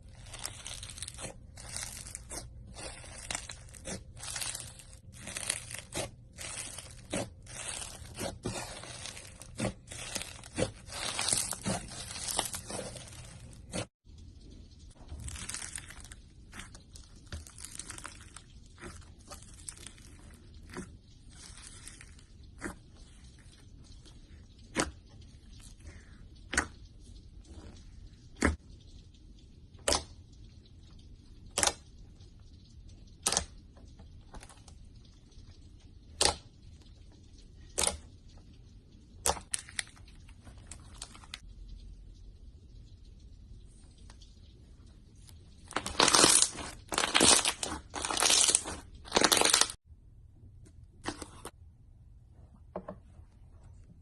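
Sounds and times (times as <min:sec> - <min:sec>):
slime stretching and squishing: 0:00.0 - 0:41.9, 0:43.6 - 0:49.8
slime popping: 0:45.7 - 0:49.8.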